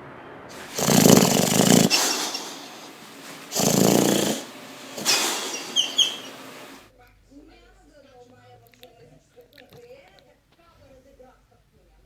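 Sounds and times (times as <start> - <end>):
dog snoring loudly: 0.5 - 6.8.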